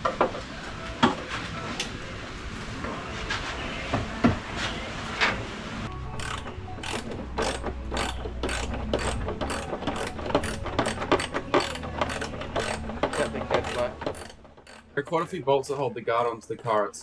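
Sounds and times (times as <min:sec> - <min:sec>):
ratchet wrench clicking: 0:06.2 - 0:14.9.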